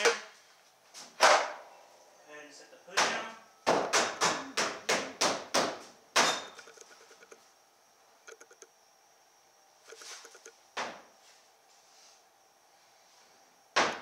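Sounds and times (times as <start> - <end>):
hammer blows ringing: 3.0 - 6.6.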